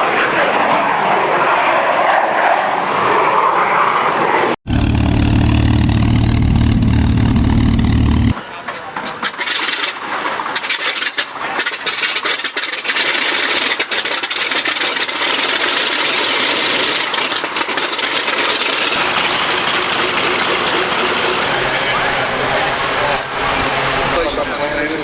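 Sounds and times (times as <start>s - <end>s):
light aircraft engine drone: 14.6s - 25.0s.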